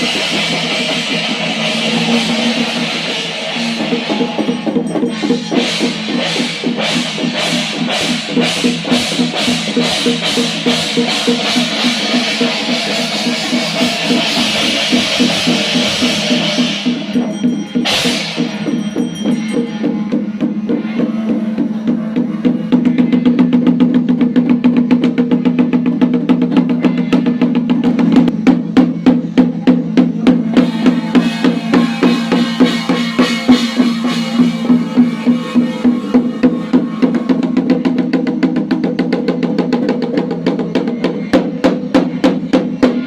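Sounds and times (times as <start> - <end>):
fast continuous drumming: 0.0 - 43.0
low ringing tone: 16.9 - 21.5.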